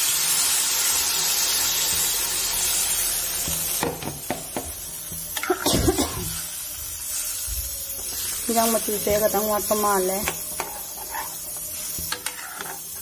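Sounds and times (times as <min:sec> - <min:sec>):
water sizzling in hot oil: 0:00.0 - 0:13.0
metal ladle scraping a pan: 0:10.2 - 0:13.0.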